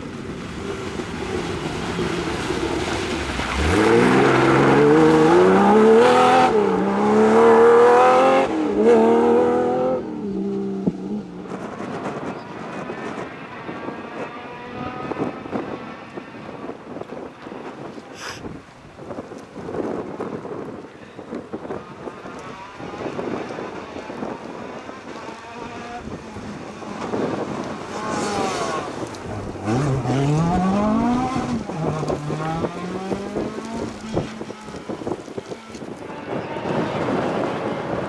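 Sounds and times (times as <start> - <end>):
rally car engine accelerating: 0.0 - 17.8, 21.4 - 38.0
wind noise on microphone: 0.0 - 38.0.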